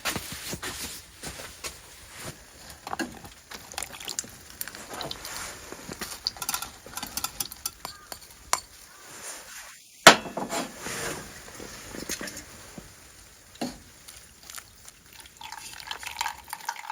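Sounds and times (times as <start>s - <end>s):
light sizzling: 0.0s - 16.9s
utensil scraping pan: 4.8s - 12.5s.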